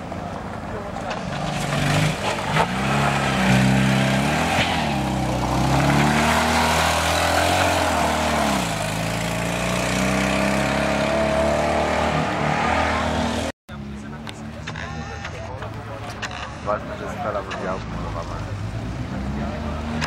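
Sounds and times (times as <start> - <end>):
tyres on loose dirt: 0.0 - 12.6
small car engine revving: 1.1 - 15.2.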